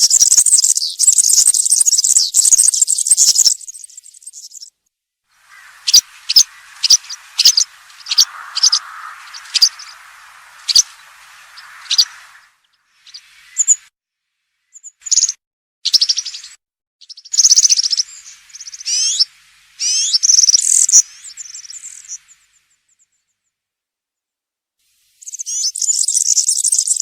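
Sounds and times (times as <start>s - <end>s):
background hiss: 5.4s - 13.8s, 18.0s - 22.8s
sharp high bird chirps: 5.4s - 13.9s
bird jingling twitter: 5.5s - 12.5s.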